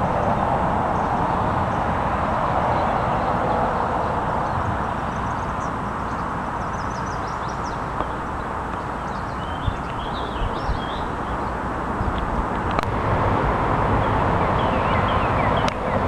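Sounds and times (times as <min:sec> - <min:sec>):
steady rushing noise: 0:00.0 - 0:16.0
small birds chirping and trilling: 0:04.4 - 0:12.3, 0:14.4 - 0:16.0.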